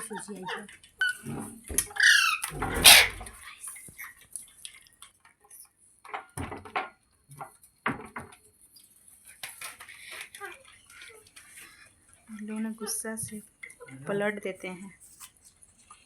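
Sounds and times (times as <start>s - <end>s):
knocks and rattles: 1.2s - 3.4s
parrot calling and screeching: 1.8s - 3.4s.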